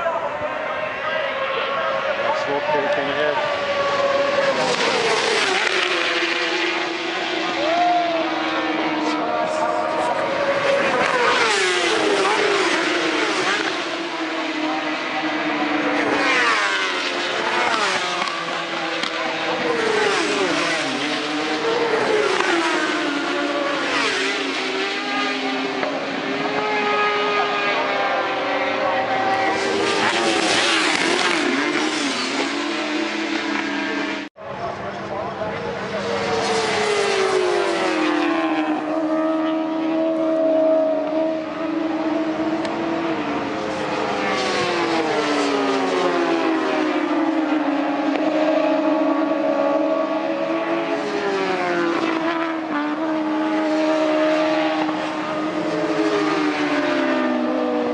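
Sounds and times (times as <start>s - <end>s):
racing motorcycles at high revs: 0.9s - 34.4s, 35.2s - 57.9s.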